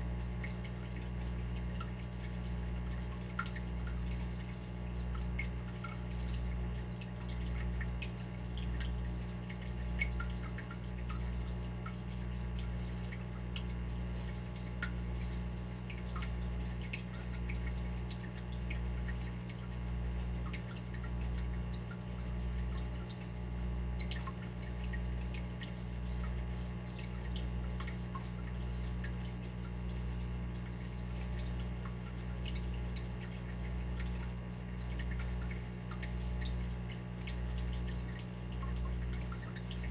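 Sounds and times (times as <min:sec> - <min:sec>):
water dripping and trickling: 0:00.0 - 0:39.9.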